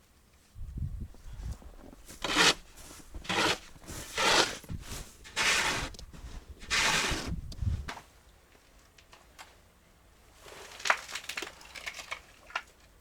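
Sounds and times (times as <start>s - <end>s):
crunching strokes in snow and ice: 1.3s - 7.4s.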